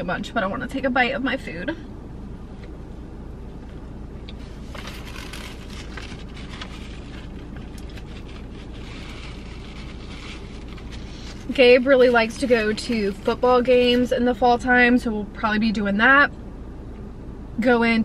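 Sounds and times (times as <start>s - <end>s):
car cabin rumble: 0.0s - 18.0s
paper napkin rustling: 4.4s - 14.1s.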